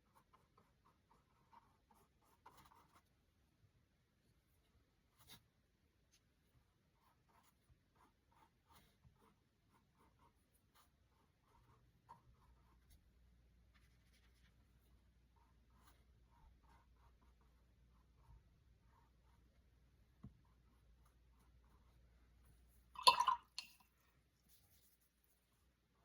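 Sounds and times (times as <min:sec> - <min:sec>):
paintbrush strokes on canvas: 0:06.1 - 0:22.9, 0:24.2 - 0:26.0.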